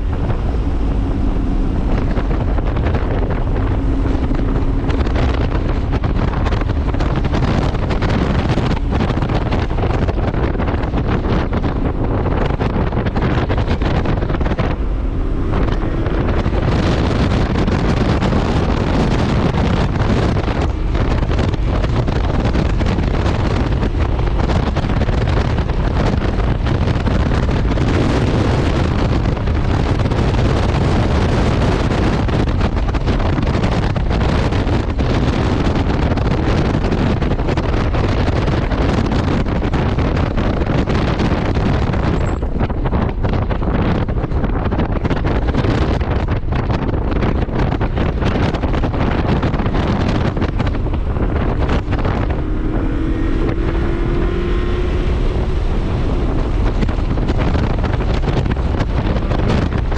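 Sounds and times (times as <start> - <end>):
car engine running: 0.0 - 59.9
road noise: 0.0 - 59.9
wind buffeting microphone: 0.0 - 59.9.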